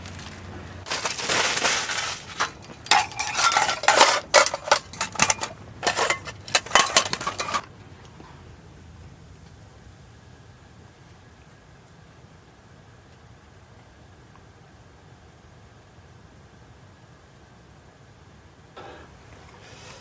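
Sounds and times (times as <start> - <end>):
metal cookware clattering: 0.9 - 7.7.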